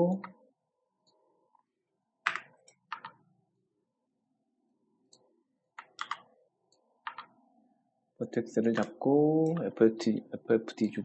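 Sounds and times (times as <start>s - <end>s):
computer mouse clicks: 2.2s - 3.2s, 5.1s - 7.3s.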